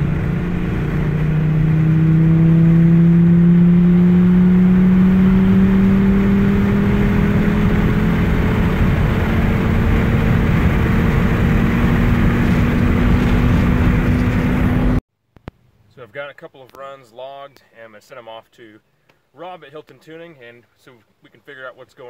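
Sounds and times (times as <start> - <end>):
car engine under full throttle: 0.0 - 15.0
road and wind noise in cabin: 0.0 - 15.0.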